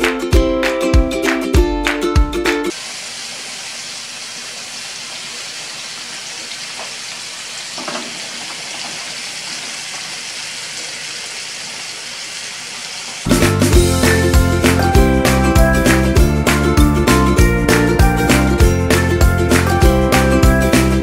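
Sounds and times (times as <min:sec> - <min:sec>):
chicken sizzling in oil: 0:02.7 - 0:14.4.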